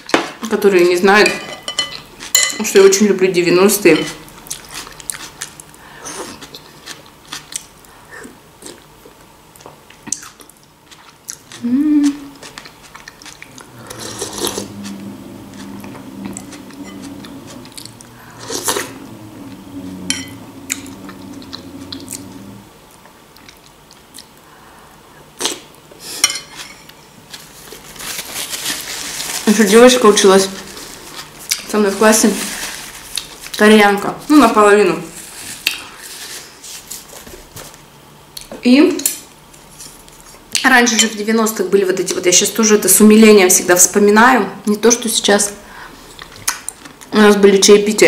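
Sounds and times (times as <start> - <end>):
low steady hum: 0.0 - 48.0
person chewing soup: 4.2 - 24.5
sliding mm tone: 13.5 - 22.8.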